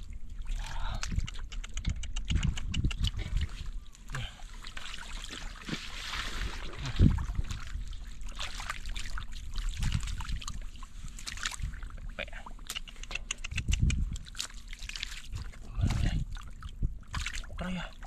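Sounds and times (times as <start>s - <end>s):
water sloshing and trickling: 0.0s - 1.6s, 2.3s - 18.0s
small splashes and drips: 0.0s - 18.0s.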